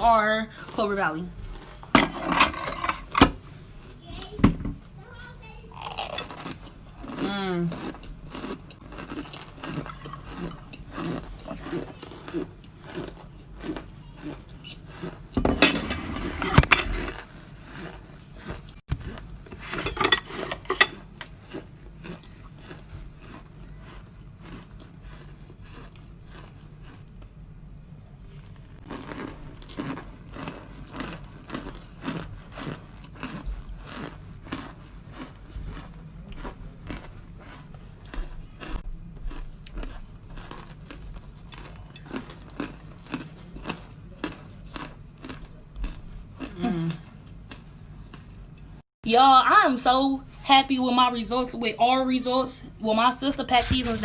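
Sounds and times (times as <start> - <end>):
crunchy food being chewed: 0.5 - 4.0, 5.7 - 15.4, 16.4 - 48.8.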